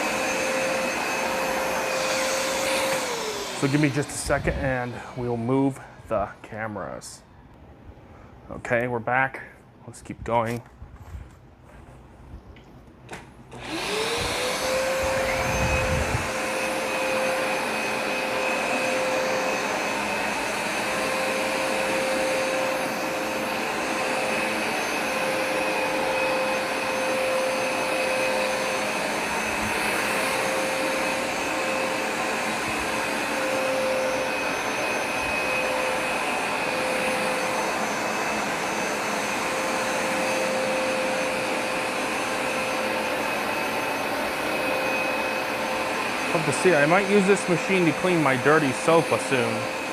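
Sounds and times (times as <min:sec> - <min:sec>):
carpet cleaner motor whine: 0:00.0 - 0:06.0, 0:13.5 - 0:49.9.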